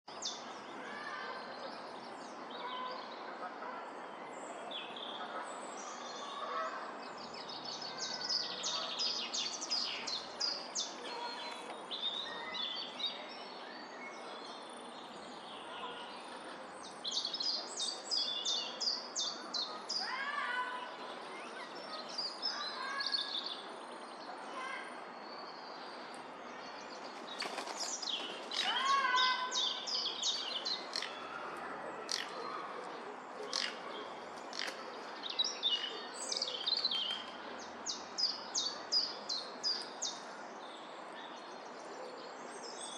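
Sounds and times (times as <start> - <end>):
steady background noise: 0.1 - 42.9
birds trilling: 27.4 - 31.4.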